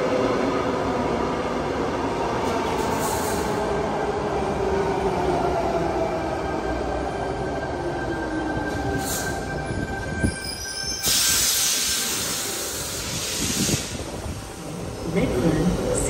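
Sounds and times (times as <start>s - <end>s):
loud air hiss: 11.0s - 14.7s.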